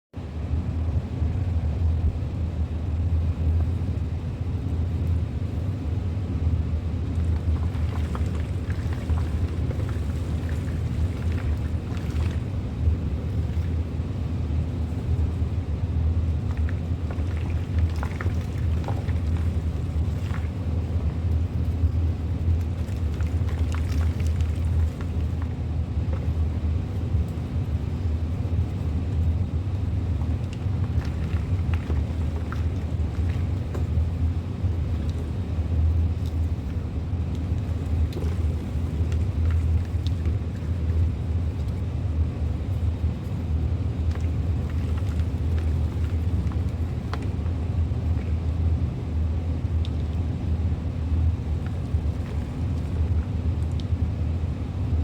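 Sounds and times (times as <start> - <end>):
steady low hum: 0.1 - 55.0.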